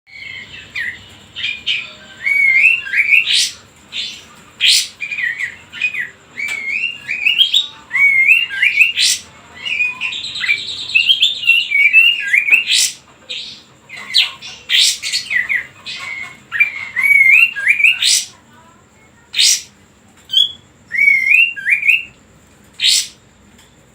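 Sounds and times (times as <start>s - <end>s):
bulbul singing: 0.1s - 23.2s
sharp bird call notes: 19.4s - 22.1s.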